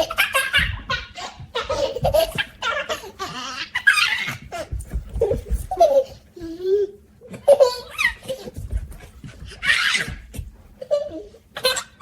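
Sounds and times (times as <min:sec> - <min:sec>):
baby laughing and giggling: 0:00.0 - 0:08.7, 0:10.8 - 0:12.0.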